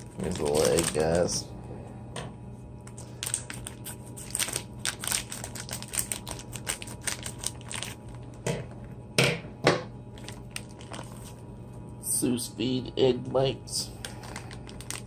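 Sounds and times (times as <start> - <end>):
plastic packaging crinkling: 0.0 - 1.4, 2.8 - 8.4, 10.1 - 11.5, 14.0 - 15.0.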